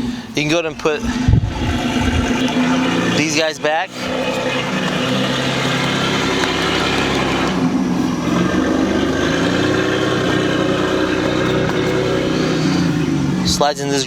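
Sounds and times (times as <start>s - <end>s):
motor droning: 1.0s - 14.0s.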